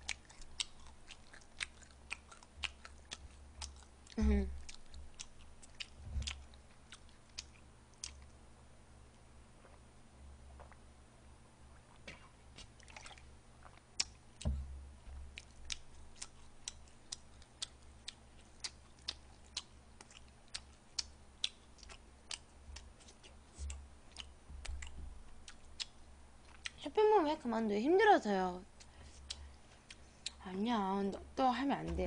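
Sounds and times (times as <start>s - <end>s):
chewing with mouth clicks: 0.0s - 8.4s, 11.7s - 14.4s, 15.1s - 26.8s, 28.8s - 31.3s
heavy thump: 14.5s - 14.8s.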